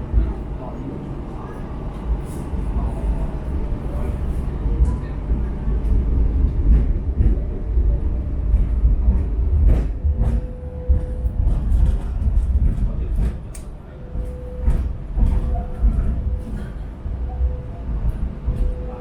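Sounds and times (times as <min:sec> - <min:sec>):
train low rumble: 0:00.0 - 0:19.0
rail clacks: 0:04.8 - 0:19.0.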